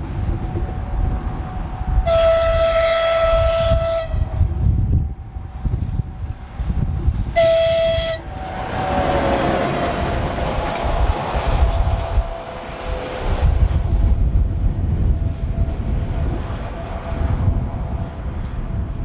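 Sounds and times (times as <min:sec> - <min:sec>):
low wind rumble: 0:00.0 - 0:19.0
vehicle horn blasts: 0:02.0 - 0:04.5, 0:07.4 - 0:08.4.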